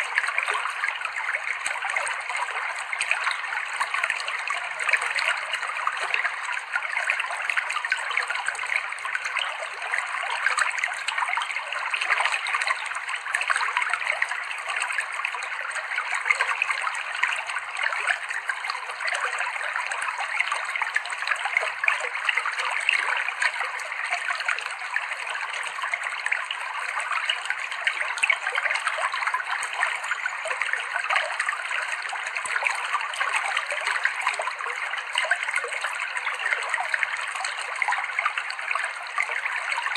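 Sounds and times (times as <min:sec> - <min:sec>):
small trickles and splashes: 0:00.0 - 0:39.9.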